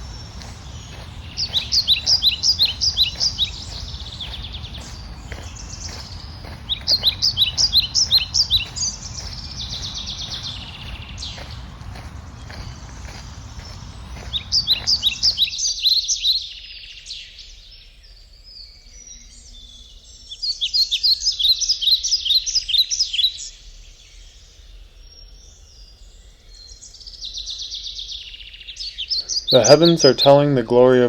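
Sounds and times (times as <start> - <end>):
low rumble: 0.0 - 15.4
songbird chirping: 0.0 - 23.0, 23.8 - 31.0.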